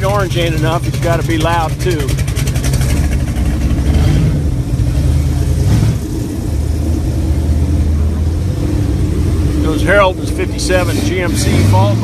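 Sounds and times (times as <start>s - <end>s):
car exhaust rumble driving off: 0.0s - 12.0s.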